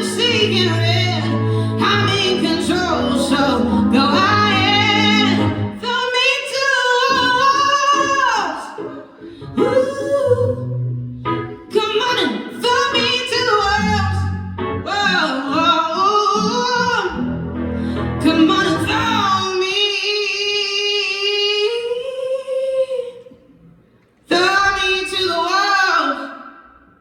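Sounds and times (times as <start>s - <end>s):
low musical accompaniment: 0.0s - 5.8s
woman singing vocal runs: 0.0s - 10.8s.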